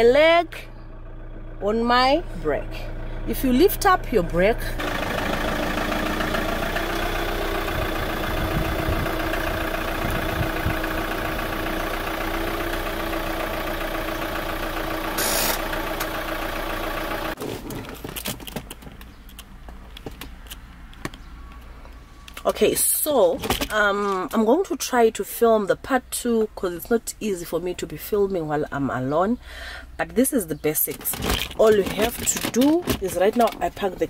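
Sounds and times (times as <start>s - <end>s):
car engine running: 0.0s - 21.2s
brief hiss: 15.2s - 15.6s.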